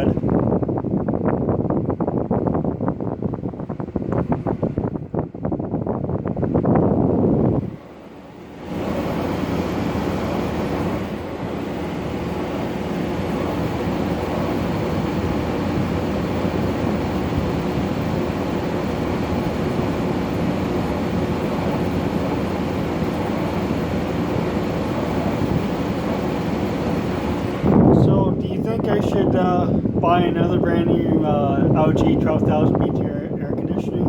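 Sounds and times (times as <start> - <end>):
compressor hum: 0.0 - 34.0
fan blowing air: 0.0 - 34.0.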